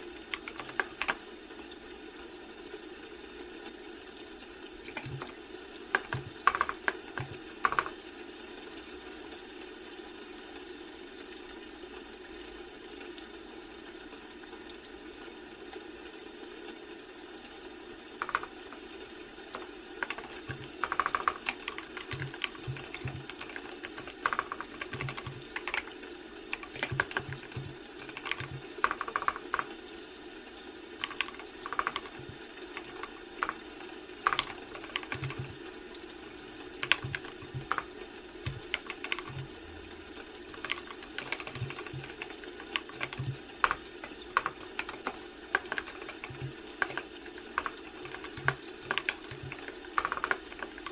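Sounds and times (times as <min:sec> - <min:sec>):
low background hum: 0:00.0 - 0:50.9
keyboard typing: 0:00.3 - 0:01.3, 0:04.8 - 0:08.0, 0:17.5 - 0:29.9, 0:31.0 - 0:50.9.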